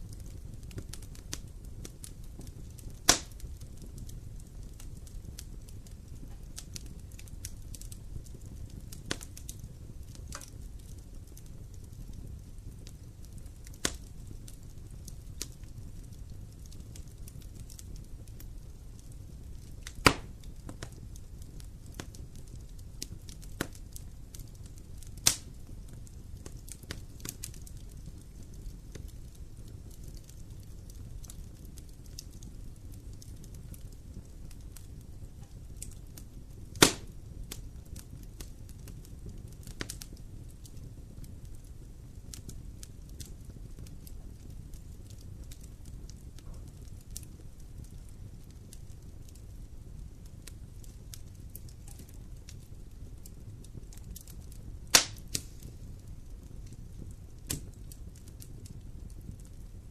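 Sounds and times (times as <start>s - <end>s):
campfire crackling: 0.0s - 59.9s
low fire rumble: 0.0s - 59.9s
loud sharp fire pop: 3.1s - 3.3s, 20.0s - 20.3s, 36.8s - 37.1s, 54.9s - 55.5s.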